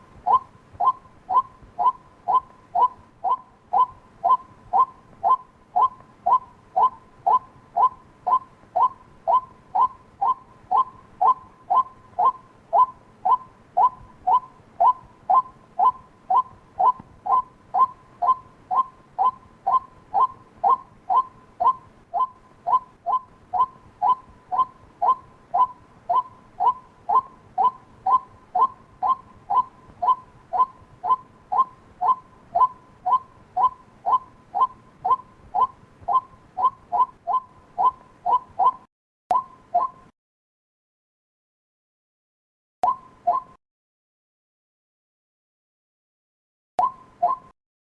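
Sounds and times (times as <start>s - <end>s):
waterhen calling: 0.0s - 40.0s.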